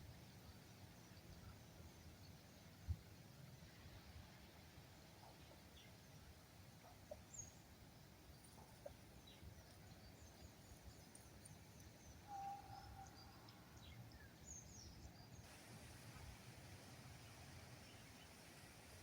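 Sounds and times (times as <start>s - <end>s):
lower steady bird call: 0.0s - 19.0s
small birds chirping: 4.8s - 15.6s, 16.8s - 19.0s.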